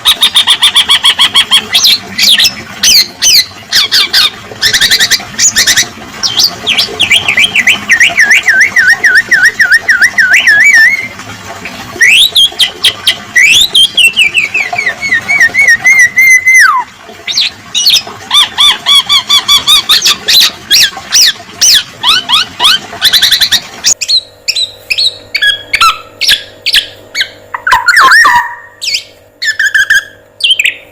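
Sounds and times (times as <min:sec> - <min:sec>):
songbird singing: 0:06.2 - 0:11.1, 0:23.9 - 0:30.8.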